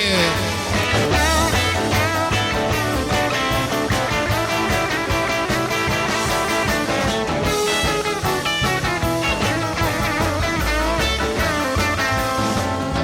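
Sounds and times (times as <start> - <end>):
rock music with guitar and drums: 0.0 - 13.0.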